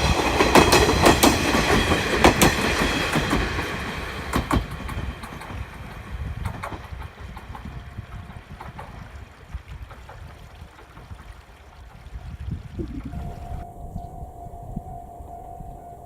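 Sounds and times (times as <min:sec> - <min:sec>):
steady high tone: 0:13.0 - 0:16.0.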